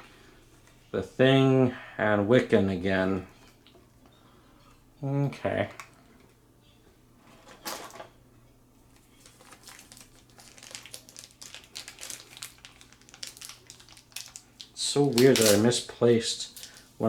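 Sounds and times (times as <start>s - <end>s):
plastic packaging crinkling: 8.9s - 17.0s.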